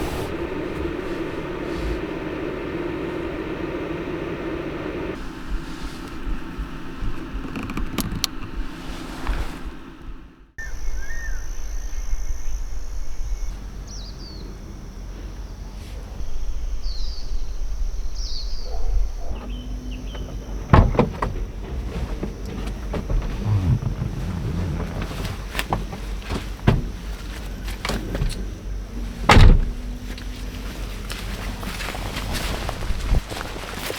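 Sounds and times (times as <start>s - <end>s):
steady low rumble: 0.0s - 33.9s
bird chirps: 10.6s - 14.6s, 16.3s - 20.4s.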